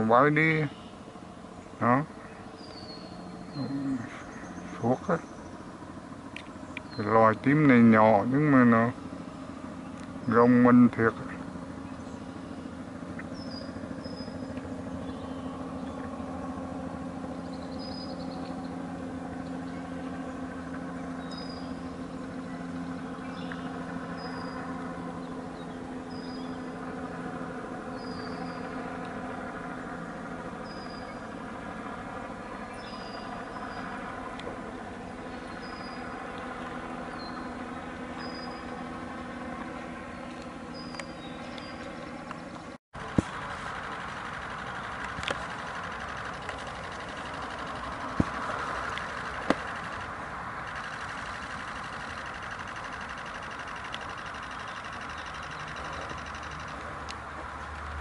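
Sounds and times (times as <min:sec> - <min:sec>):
low mechanical hum: 0:00.0 - 0:58.0
bird chirping: 0:00.5 - 0:05.6, 0:11.3 - 0:16.1, 0:17.3 - 0:18.8, 0:19.4 - 0:26.8, 0:27.9 - 0:28.9, 0:30.6 - 0:31.3, 0:32.6 - 0:34.0, 0:35.2 - 0:36.2, 0:37.1 - 0:37.6, 0:38.2 - 0:38.8, 0:40.1 - 0:42.6.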